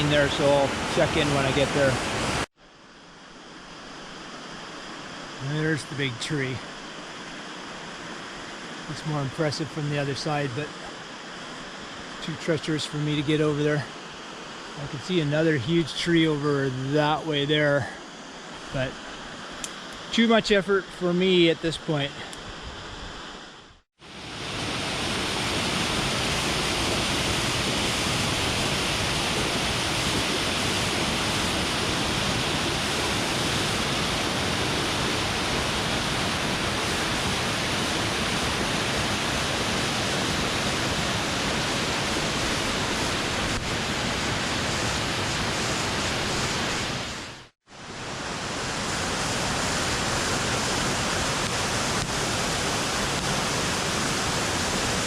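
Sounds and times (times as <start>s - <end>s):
waterfall rushing: 0.0s - 2.5s, 24.0s - 55.0s.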